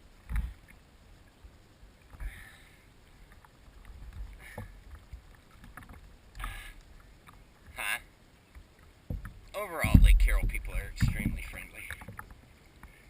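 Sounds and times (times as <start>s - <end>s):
rushing water: 0.0s - 13.0s
boat thumps and splashes: 9.0s - 12.3s
wind noise: 9.1s - 12.3s.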